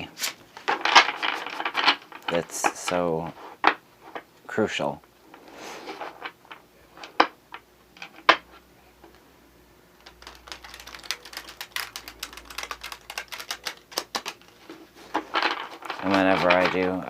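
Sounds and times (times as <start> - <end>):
cards tapping: 10.0 - 16.8
cards shuffling with clicks: 10.0 - 16.9.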